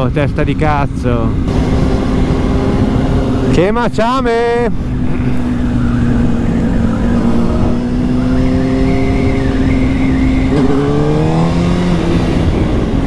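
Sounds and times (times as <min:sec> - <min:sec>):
wind rush: 0:10.2 - 0:13.0.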